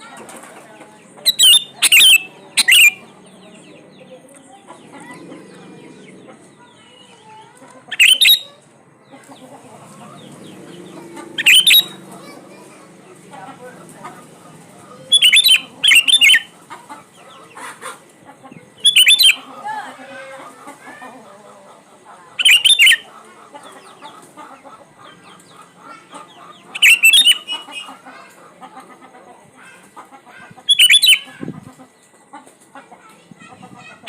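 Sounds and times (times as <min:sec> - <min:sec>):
soft bird chatter: 0:00.0 - 0:34.0
bird whistled phrases: 0:01.3 - 0:03.1, 0:07.9 - 0:08.6, 0:11.4 - 0:12.0, 0:15.1 - 0:16.5, 0:18.8 - 0:19.5, 0:22.4 - 0:23.1, 0:26.7 - 0:27.9, 0:30.7 - 0:31.3.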